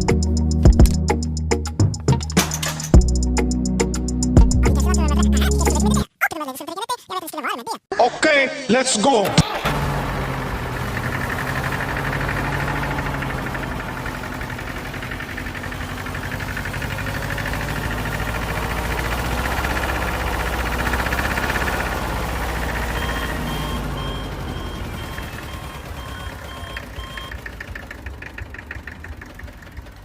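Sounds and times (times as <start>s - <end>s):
small motor running with rattle: 10.8s - 23.2s, 24.2s - 30.0s
electronic beep: 22.8s - 27.4s.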